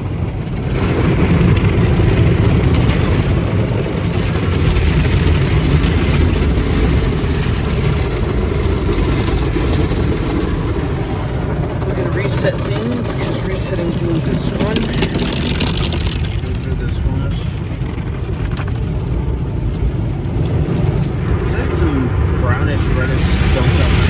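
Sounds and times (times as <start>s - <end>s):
car wash machinery rushing: 0.0s - 24.0s.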